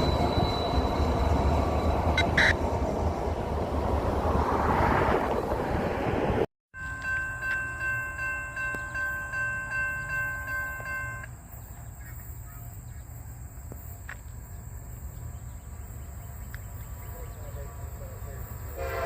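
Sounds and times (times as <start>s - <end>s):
railroad bell ringing: 0.0s - 2.6s, 6.7s - 11.4s.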